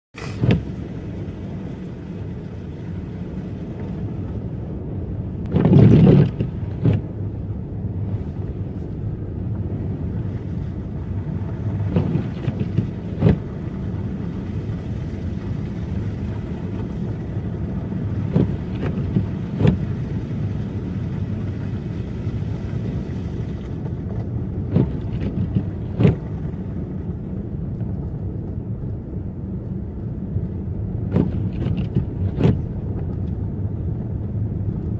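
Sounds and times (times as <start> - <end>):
car engine and tyres rumbling: 0.0 - 34.9
car thump: 0.1 - 1.2, 5.4 - 7.3, 11.4 - 26.7, 31.0 - 33.3.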